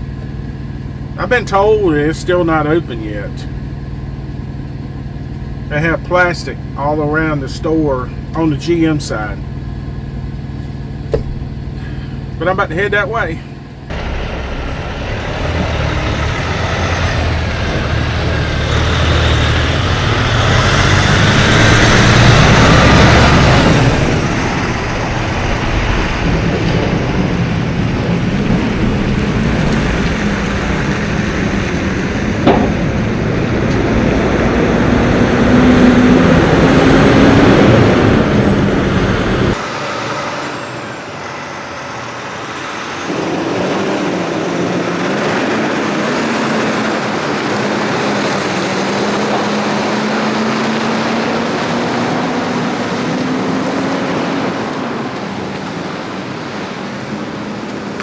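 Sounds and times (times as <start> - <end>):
road noise: 0.0 - 58.0
truck diesel engine under load: 0.0 - 58.0
sharp knock: 11.1 - 11.5, 32.4 - 33.2.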